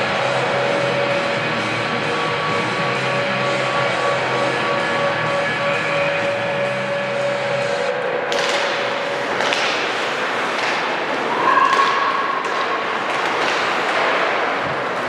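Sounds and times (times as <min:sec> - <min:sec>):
crowd noise: 0:00.0 - 0:15.0
skating: 0:00.0 - 0:15.0
sticks and puck hitting boards: 0:08.2 - 0:15.0.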